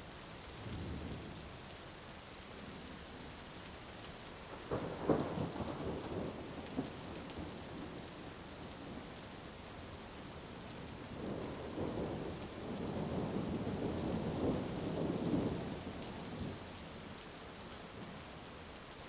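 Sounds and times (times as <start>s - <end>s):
heavy rain: 0.0s - 19.0s
thunder rumbling: 4.6s - 8.0s, 11.1s - 16.5s.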